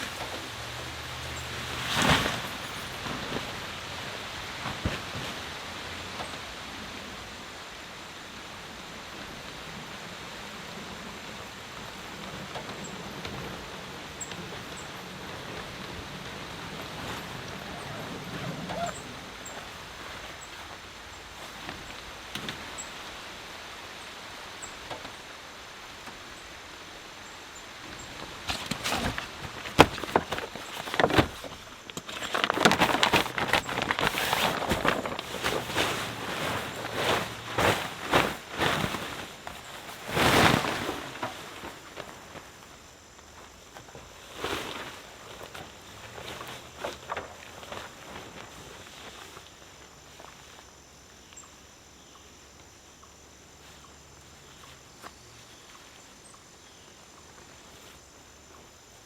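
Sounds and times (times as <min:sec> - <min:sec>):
steady rainfall: 0:00.0 - 0:43.0
gear rustling and knocking: 0:01.6 - 0:04.0, 0:28.0 - 0:42.2.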